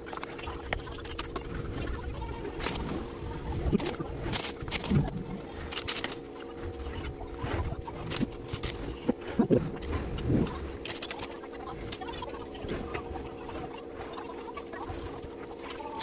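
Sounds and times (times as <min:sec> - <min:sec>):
steady low hum: 0:00.0 - 0:16.0
plastic pieces clicking: 0:03.7 - 0:06.3, 0:10.4 - 0:12.0.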